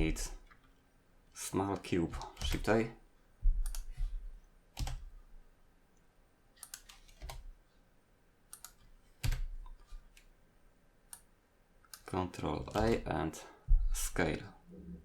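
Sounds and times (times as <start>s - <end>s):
keyboard and mouse clicks: 1.8s - 2.8s, 3.6s - 4.2s, 4.8s - 5.1s, 6.6s - 7.5s, 8.5s - 10.3s, 11.9s - 12.1s, 12.7s - 13.1s.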